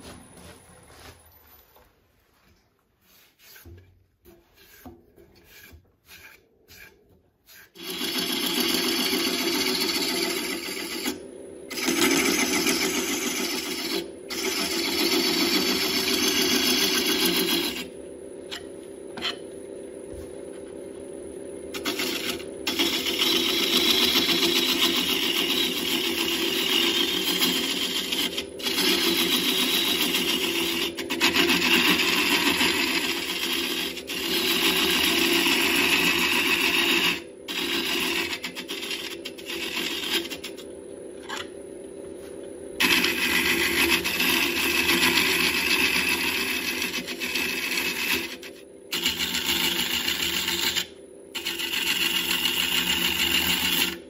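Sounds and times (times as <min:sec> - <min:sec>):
turning tool scraping wood: 0:03.0 - 0:17.9, 0:21.7 - 0:41.5, 0:42.2 - 0:54.0
wood lathe spinning: 0:03.0 - 0:19.4, 0:21.6 - 0:41.6, 0:42.2 - 0:54.0.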